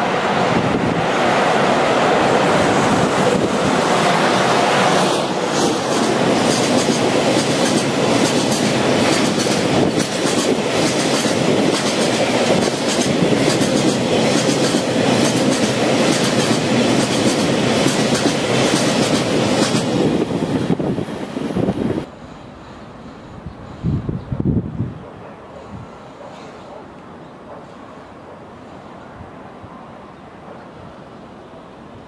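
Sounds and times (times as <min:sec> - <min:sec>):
train wheels clattering: 0:05.0 - 0:20.0.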